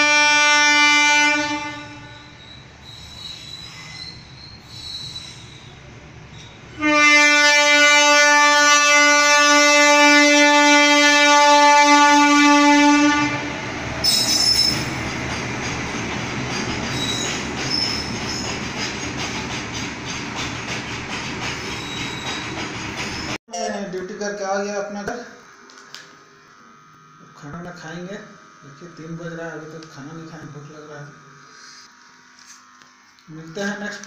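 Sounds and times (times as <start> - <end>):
train horn blast: 0.0 - 2.4, 6.7 - 13.6
train running on rails: 0.0 - 23.4
train wheel squeal: 2.1 - 6.8, 14.0 - 23.4.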